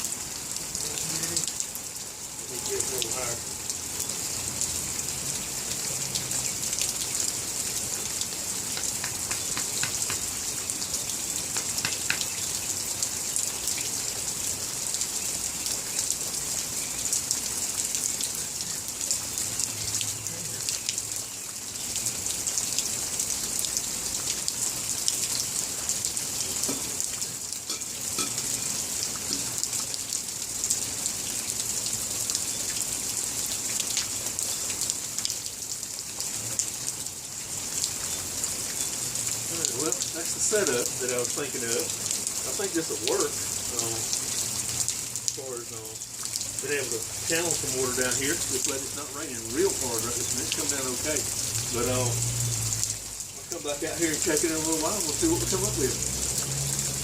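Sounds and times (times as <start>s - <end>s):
light rain ticking: 0.0s - 57.0s.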